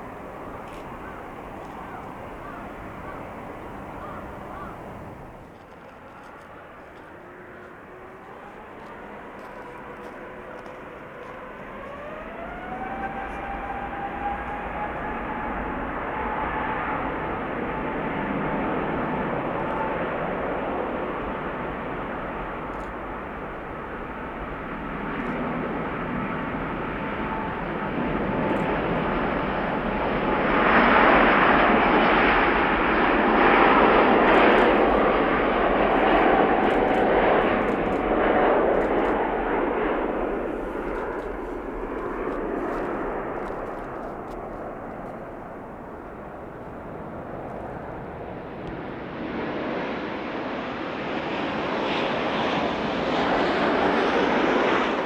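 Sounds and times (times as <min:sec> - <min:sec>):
jet airliner passing: 0:00.0 - 0:55.0.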